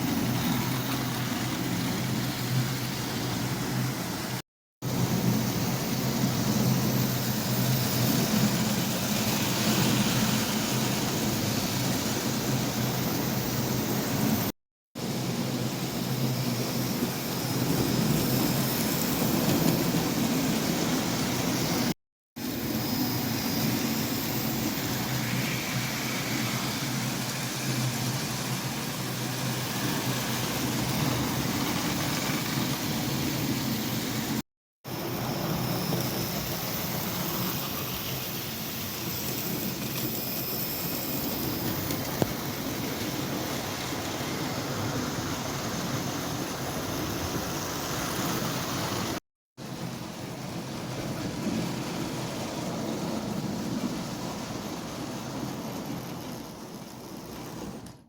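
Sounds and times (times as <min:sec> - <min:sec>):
model train motor hum: 0:22.5 - 0:34.4, 0:35.0 - 0:49.2, 0:54.5 - 0:58.0
wheels rolling over rails: 0:50.9 - 0:58.0.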